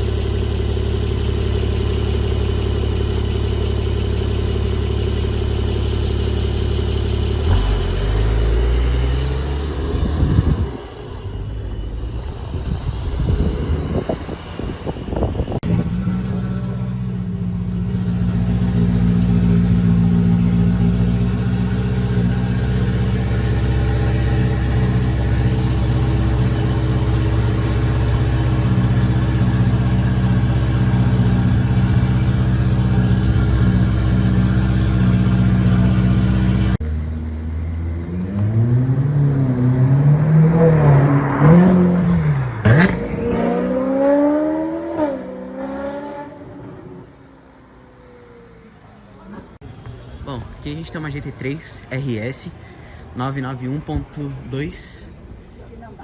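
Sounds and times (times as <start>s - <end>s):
car engine idling: 0.0s - 38.0s
car engine revving: 0.0s - 50.0s.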